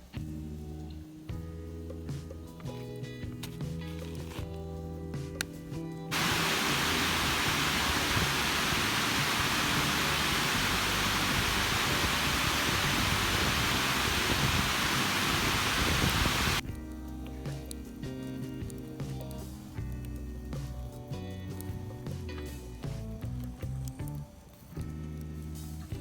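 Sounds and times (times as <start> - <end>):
heavy rain falling: 6.1 - 16.6.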